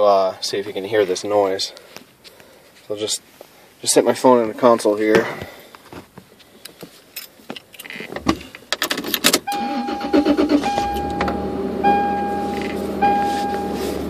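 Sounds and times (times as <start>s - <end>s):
truck engine starting and idling: 9.4s - 14.0s
electronic warning chime: 9.5s - 14.0s.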